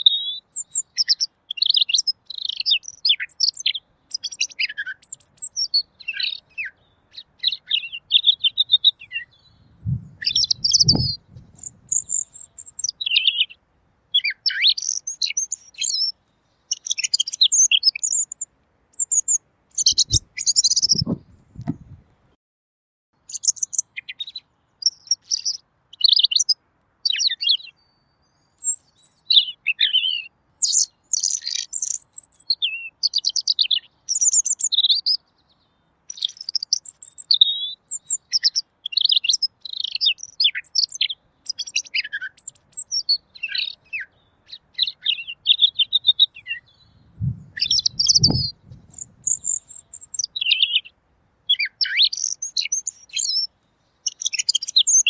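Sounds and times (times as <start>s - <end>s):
bird chirping and warbling: 0.0s - 13.6s, 14.2s - 16.1s, 16.7s - 18.4s, 19.0s - 22.0s, 36.1s - 50.9s, 51.5s - 55.0s
low thud: 21.0s - 22.0s.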